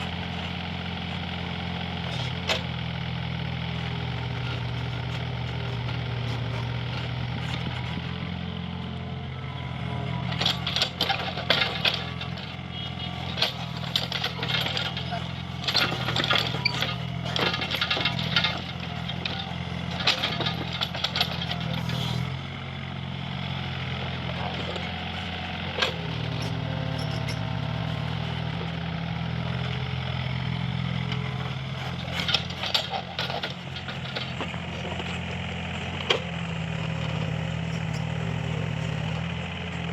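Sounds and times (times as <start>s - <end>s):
diesel engine running: 0.0s - 39.9s
sharp metal clanks and scrapes: 10.3s - 22.2s, 25.8s - 27.4s.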